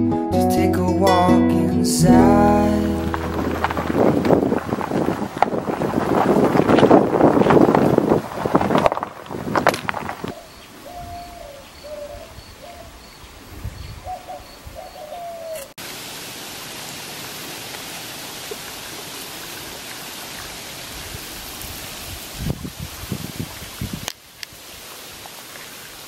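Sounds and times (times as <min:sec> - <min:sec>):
steady rushing noise: 0:02.8 - 0:10.3
bird cooing: 0:10.3 - 0:13.2, 0:14.0 - 0:15.7.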